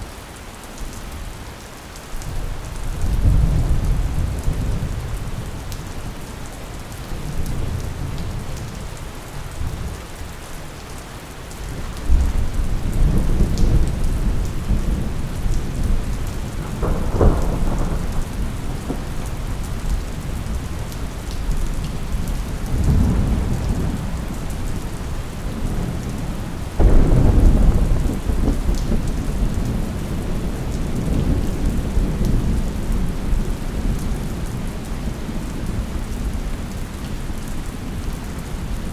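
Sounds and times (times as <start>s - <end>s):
steady rain falling: 0.0s - 38.9s
rolling thunder: 11.8s - 34.3s.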